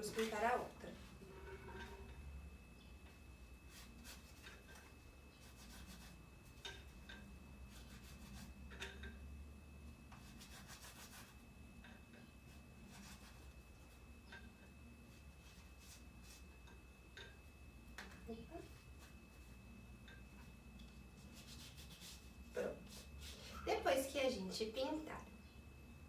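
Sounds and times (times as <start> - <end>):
fingertips rubbing on cardboard: 3.6 - 4.7, 5.4 - 6.6, 7.7 - 8.6, 10.1 - 11.4, 12.8 - 13.9, 21.2 - 23.4.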